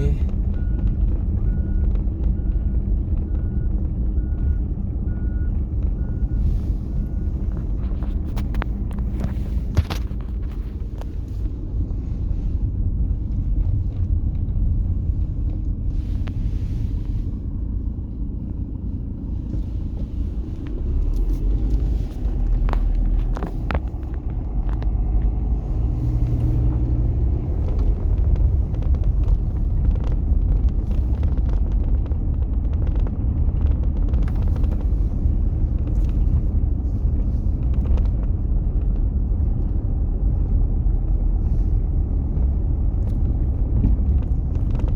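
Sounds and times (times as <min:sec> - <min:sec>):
car engine and tyres rumbling: 0:00.0 - 0:44.9.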